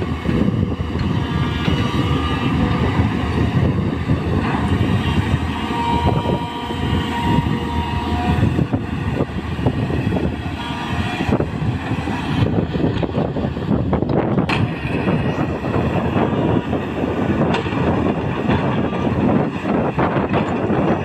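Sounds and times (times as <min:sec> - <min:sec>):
thin whine: 0:00.0 - 0:17.6
excavator diesel engine running: 0:00.0 - 0:21.0
clanks and clatter: 0:17.4 - 0:21.0.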